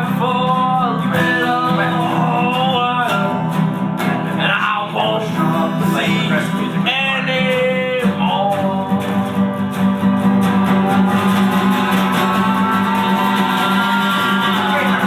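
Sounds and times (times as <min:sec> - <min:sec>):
rock guitars strumming: 0:00.0 - 0:15.0
person singing held word: 0:10.7 - 0:15.0.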